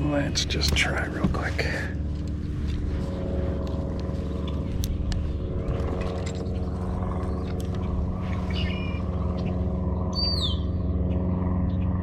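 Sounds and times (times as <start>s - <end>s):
motor running drone: 0.0s - 12.0s.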